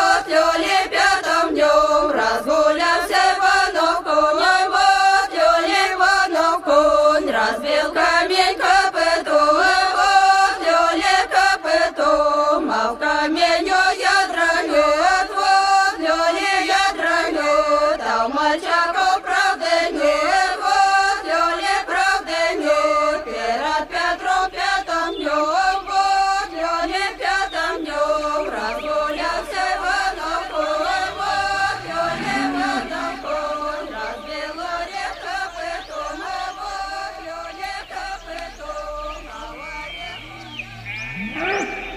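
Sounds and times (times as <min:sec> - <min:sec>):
devotional chanting: 0:00.0 - 0:41.9
low rising tone: 0:30.2 - 0:34.6.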